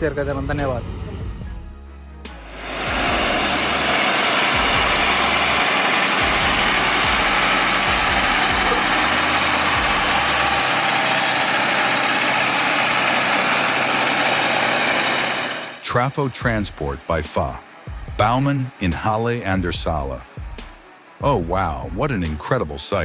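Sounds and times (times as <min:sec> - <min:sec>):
vehicle engine running: 0:02.3 - 0:19.1
loud rushing noise: 0:02.4 - 0:15.8.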